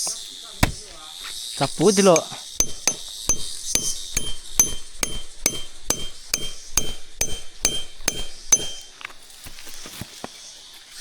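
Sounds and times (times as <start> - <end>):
hammer striking metal: 0.0 - 1.0, 2.1 - 9.3
light knocks: 0.0 - 1.1.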